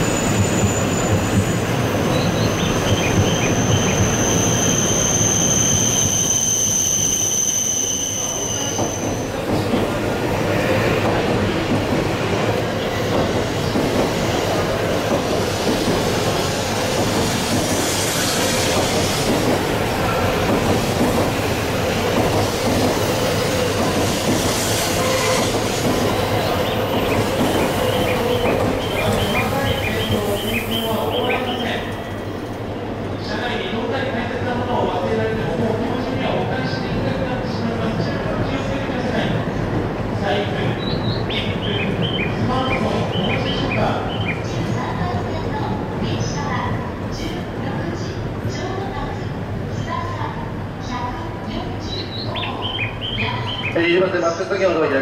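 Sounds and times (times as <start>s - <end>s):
train wheel squeal: 0.0s - 9.4s, 22.9s - 32.3s
train rumbling past: 0.0s - 55.0s.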